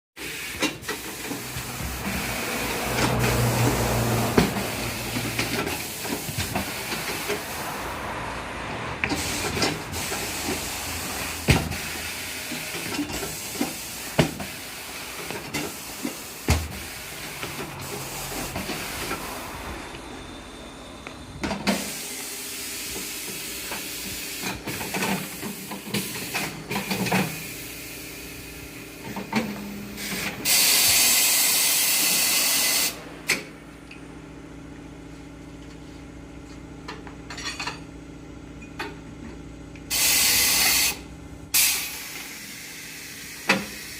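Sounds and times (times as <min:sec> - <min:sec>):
compressed air hissing: 0:00.2 - 0:08.4, 0:09.0 - 0:19.4, 0:21.7 - 0:28.4, 0:30.0 - 0:33.0, 0:39.9 - 0:43.9.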